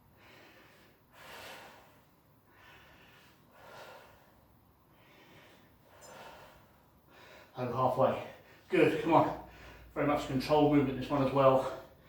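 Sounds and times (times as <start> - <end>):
person breathing heavily: 0.0 - 7.6, 9.4 - 10.0.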